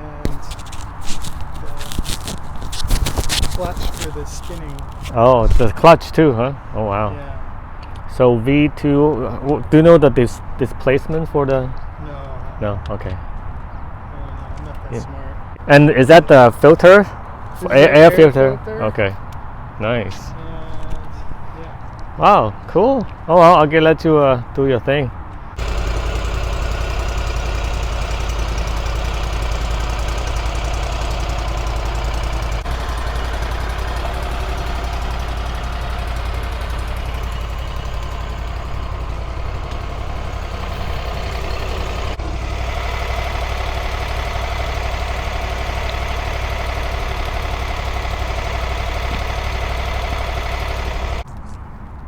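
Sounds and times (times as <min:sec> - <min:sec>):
stump grinder engine running: 0:00.0 - 0:05.2, 0:25.6 - 0:51.2.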